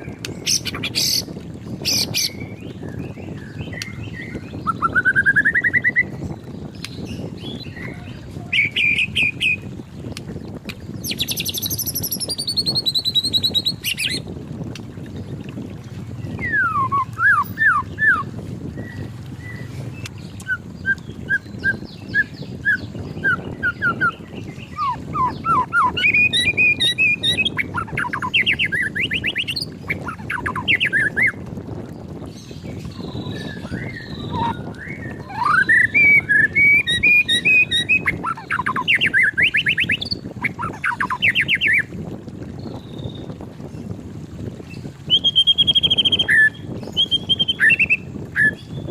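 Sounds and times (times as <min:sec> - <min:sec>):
bird singing whistles and trills: 0:00.2 - 0:10.0, 0:11.0 - 0:14.3, 0:16.2 - 0:31.4, 0:32.2 - 0:41.9, 0:42.6 - 0:43.3, 0:44.7 - 0:48.9
low background rumble: 0:02.5 - 0:28.9.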